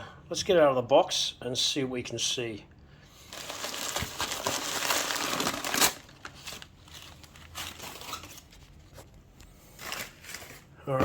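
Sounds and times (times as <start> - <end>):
bubble wrap and cardboard crinkling: 3.2 - 11.0
packaging rustling: 3.3 - 10.8.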